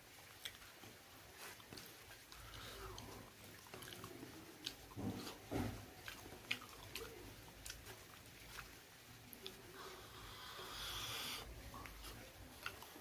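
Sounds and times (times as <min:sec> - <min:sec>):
person chewing: 0:00.4 - 0:13.0.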